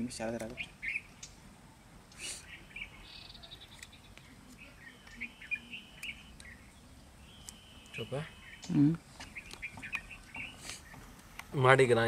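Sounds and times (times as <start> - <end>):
birds chirping: 0.0 - 12.0
bird whistled notes: 2.1 - 3.9, 4.6 - 11.0.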